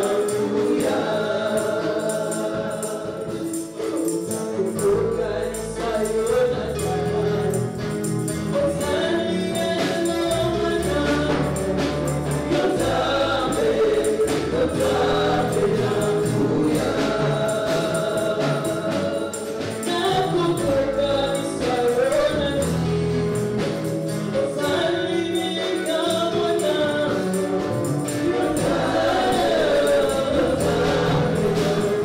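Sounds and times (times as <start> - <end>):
choir singing gospel song: 0.0 - 32.0
tambourine-like percussion: 0.0 - 32.0
bass line: 4.8 - 19.2, 20.0 - 25.3, 27.4 - 32.0.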